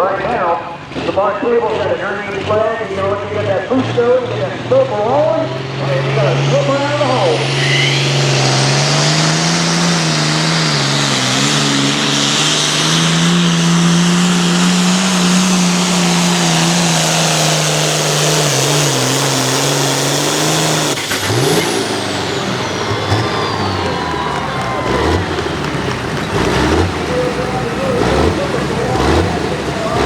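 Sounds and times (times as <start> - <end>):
exhaust and turbo rush: 0.0 - 30.0
tractor engine at full throttle: 0.0 - 30.0.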